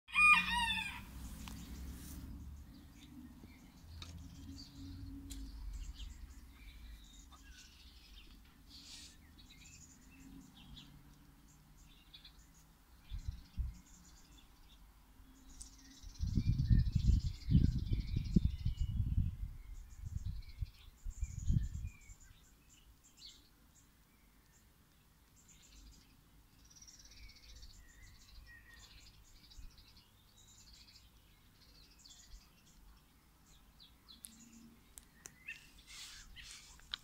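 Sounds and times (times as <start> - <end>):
small birds chirping: 0.1 - 37.0.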